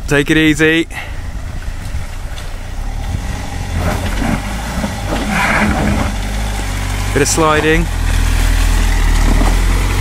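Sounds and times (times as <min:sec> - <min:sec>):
car engine revving: 0:02.1 - 0:10.0
tyres sliding in mud: 0:02.2 - 0:10.0.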